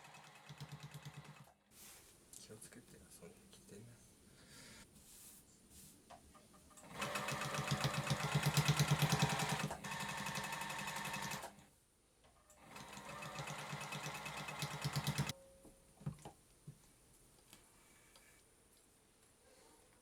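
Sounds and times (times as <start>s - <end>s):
sewing machine stitching: 6.8s - 11.6s, 12.6s - 15.3s.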